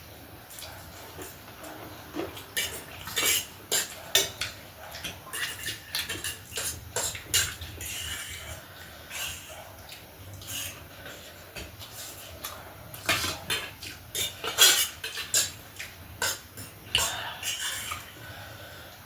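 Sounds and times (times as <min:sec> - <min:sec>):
cutlery clinking on a dish: 0:01.2 - 0:09.4.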